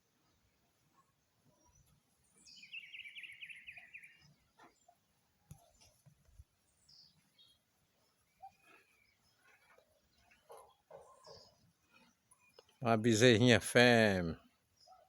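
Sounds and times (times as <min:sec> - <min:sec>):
bird singing faintly: 0:01.0 - 0:05.0.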